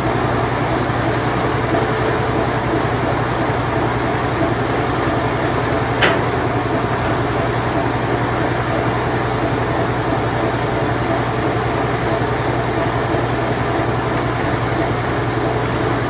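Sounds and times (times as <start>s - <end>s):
washing machine spinning: 0.0s - 16.0s.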